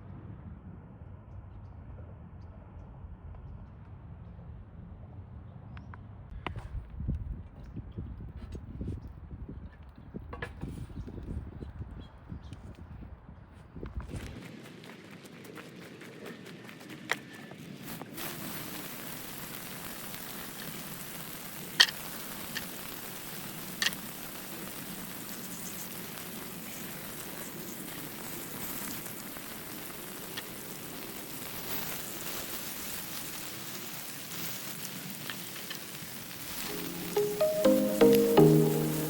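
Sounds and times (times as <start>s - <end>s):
campfire crackling: 14.2s - 39.0s
fire pops: 17.8s - 39.0s.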